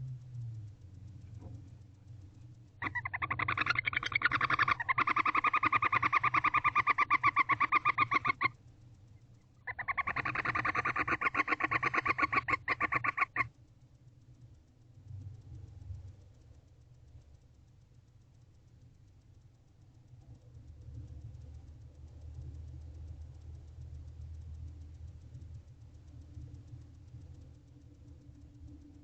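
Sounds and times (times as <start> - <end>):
barn owl twittering: 2.8 - 8.6, 9.2 - 13.5.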